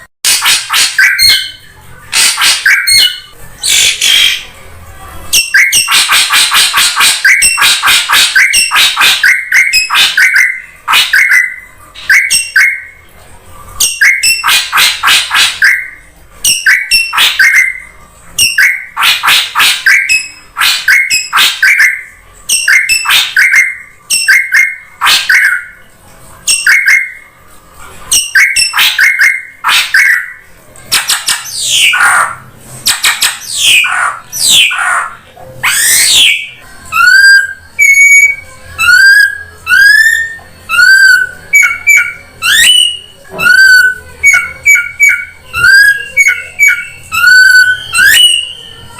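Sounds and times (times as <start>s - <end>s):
drongo calls: 28.2s - 48.6s.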